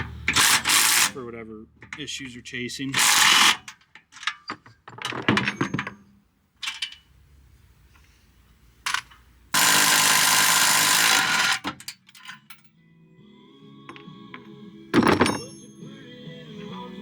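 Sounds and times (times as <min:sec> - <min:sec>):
power tool running: 0:00.0 - 0:01.2, 0:09.5 - 0:11.7
metal tool clinks: 0:15.0 - 0:15.9.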